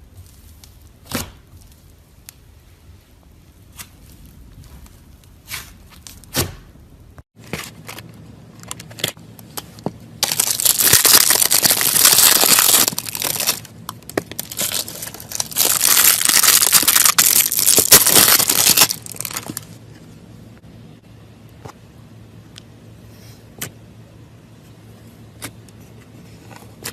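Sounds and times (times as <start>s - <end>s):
slime crackling and tearing: 10.2s - 19.8s.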